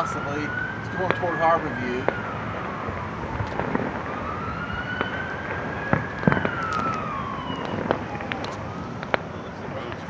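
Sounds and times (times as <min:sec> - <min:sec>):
distant ambulance siren wailing: 0:00.0 - 0:10.0
fireworks popping: 0:03.0 - 0:04.2, 0:04.9 - 0:10.0.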